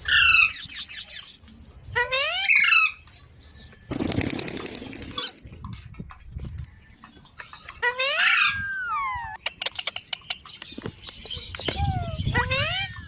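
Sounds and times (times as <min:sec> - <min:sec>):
parrot squawking: 0:00.0 - 0:01.1, 0:07.8 - 0:09.4, 0:11.7 - 0:13.0.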